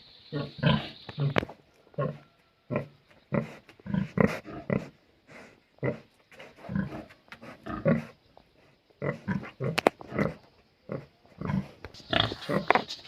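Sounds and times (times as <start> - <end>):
pig grunting: 2.0 - 5.0, 5.8 - 8.2, 9.0 - 12.8.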